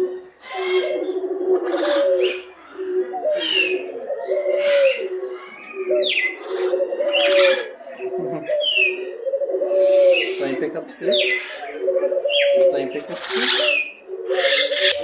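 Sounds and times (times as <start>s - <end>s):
bird cooing: 0.0s - 15.0s
harsh bird squawks: 9.8s - 15.0s.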